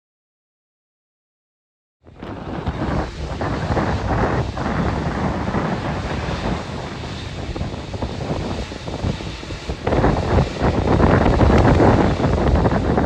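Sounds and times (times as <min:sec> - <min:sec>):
wind buffeting microphone: 0:02.0 - 0:13.0.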